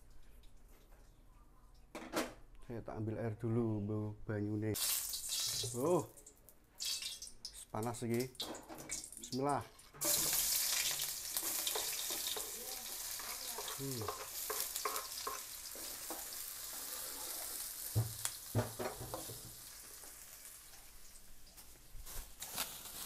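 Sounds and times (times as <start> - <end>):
food sizzling in hot oil: 4.8 - 23.0
spatula stirring in wok: 10.0 - 17.7.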